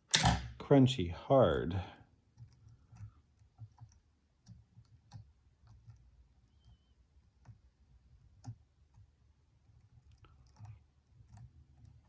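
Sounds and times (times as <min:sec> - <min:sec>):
lock pick clicking in padlock: 0:00.1 - 0:00.5.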